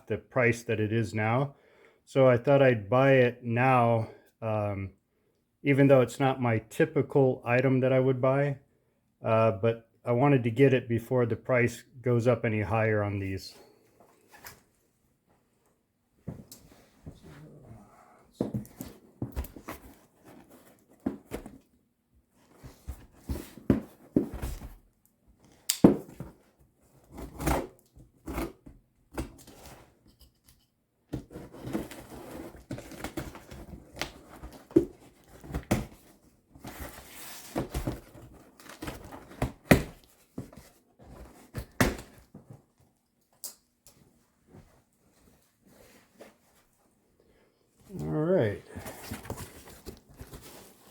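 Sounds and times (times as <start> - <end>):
cardboard box handled and opened: 18.4 - 21.8, 22.4 - 24.9, 31.2 - 42.8, 47.9 - 50.9.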